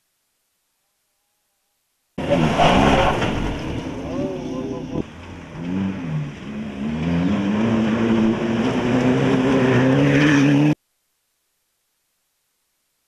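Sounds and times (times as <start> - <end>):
car engine accelerating hard: 2.2 - 10.8.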